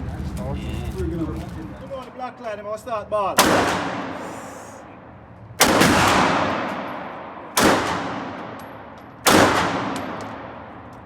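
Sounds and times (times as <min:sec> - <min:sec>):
gunshots echoing: 0:03.4 - 0:04.8, 0:05.6 - 0:11.0.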